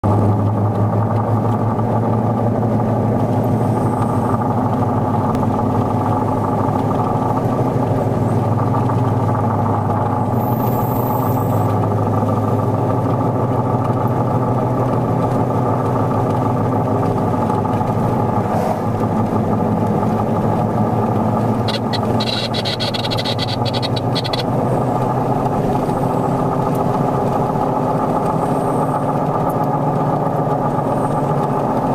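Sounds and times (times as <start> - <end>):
vehicle engine running: 0.0 - 31.9
high-pitched rattle: 21.6 - 24.4.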